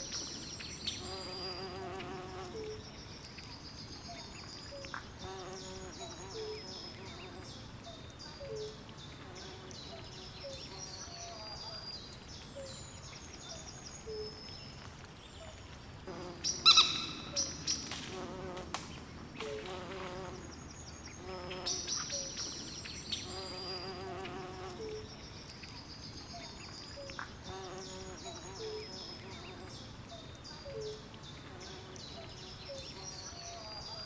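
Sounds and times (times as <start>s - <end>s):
birds calling: 15.3s - 18.6s.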